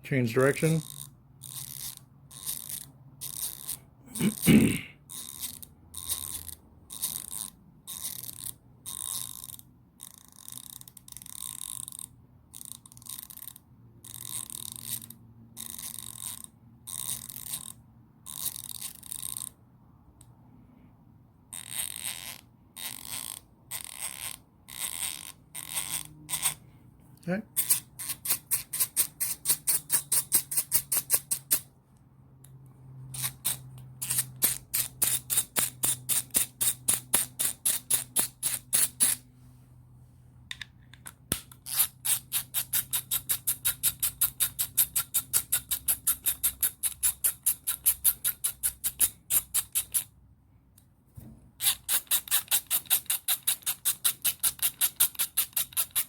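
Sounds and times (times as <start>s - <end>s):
ratchet clicking fast: 0.8s - 3.8s, 5.1s - 19.6s, 33.2s - 39.2s, 51.6s - 56.0s.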